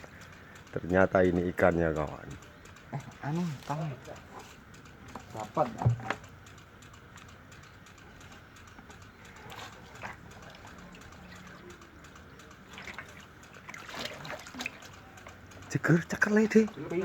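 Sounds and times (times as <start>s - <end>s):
soft clicks and knocks: 2.4s - 15.6s.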